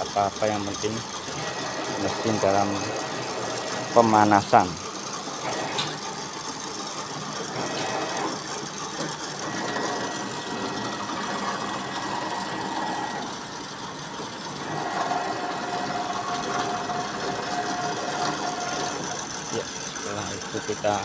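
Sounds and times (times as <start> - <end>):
sewing machine running: 0.0 - 21.0.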